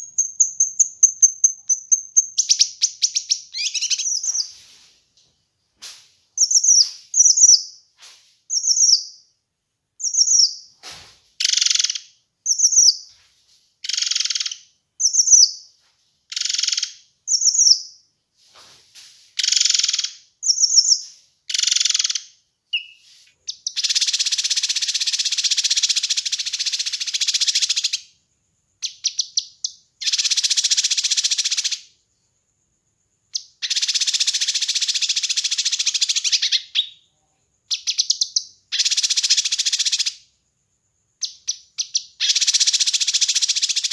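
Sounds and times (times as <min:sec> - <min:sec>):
harsh rattling bird trills: 0:00.0 - 0:04.6, 0:13.8 - 0:15.5, 0:19.4 - 0:28.0, 0:30.0 - 0:31.9, 0:33.6 - 0:37.0, 0:37.7 - 0:40.2, 0:41.2 - 0:43.9
bird chirping: 0:00.0 - 0:05.3, 0:06.4 - 0:07.9, 0:08.5 - 0:09.4, 0:10.0 - 0:10.8, 0:11.4 - 0:18.1, 0:19.4 - 0:32.2, 0:33.2 - 0:40.3, 0:40.9 - 0:43.9.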